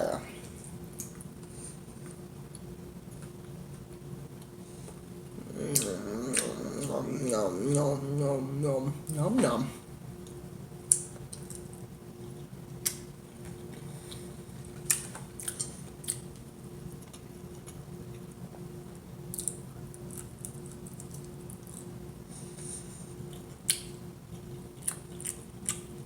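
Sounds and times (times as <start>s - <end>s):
faint steady hum: 0.0s - 26.0s
person chewing food: 0.4s - 9.2s, 12.4s - 18.3s, 22.6s - 26.0s
sharp mouth clicks and smacks: 12.8s - 13.5s, 19.3s - 21.9s, 23.7s - 23.9s.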